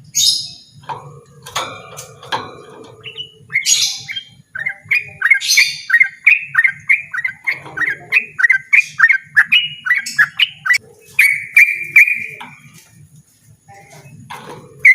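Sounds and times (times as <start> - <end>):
bird singing sharp notes: 2.9 - 12.6.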